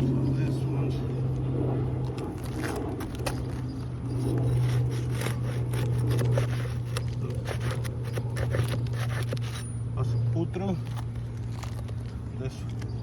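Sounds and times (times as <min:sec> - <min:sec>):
steady low hum: 0:00.0 - 0:13.0
tool scraping under shingles: 0:02.0 - 0:09.8, 0:10.7 - 0:13.0.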